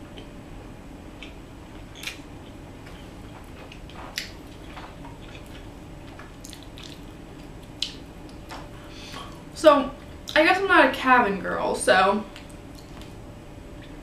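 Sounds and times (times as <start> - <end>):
wet mouth clicks and smacks: 6.4 - 7.1.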